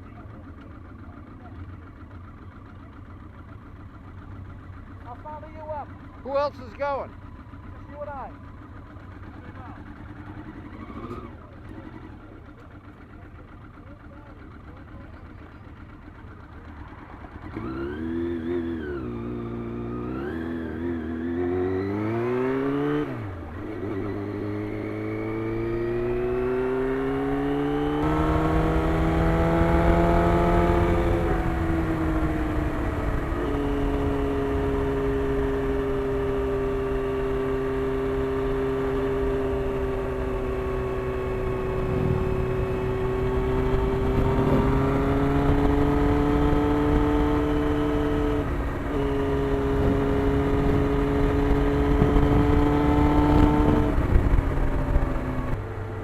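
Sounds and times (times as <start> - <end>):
motorcycle engine accelerating: 0.0 - 56.0
wind rushing over microphone: 41.3 - 55.6.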